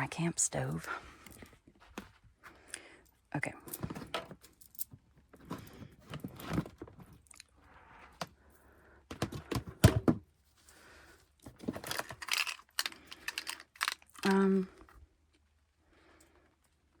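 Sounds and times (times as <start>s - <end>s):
knocks and clicks of handled gear: 11.4s - 14.6s.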